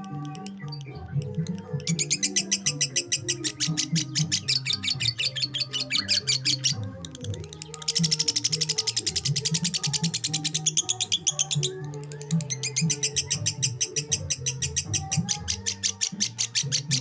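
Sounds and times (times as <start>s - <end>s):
background music with bass: 0.0s - 17.0s
lovebird chirping rapidly: 1.8s - 6.8s, 12.6s - 17.0s.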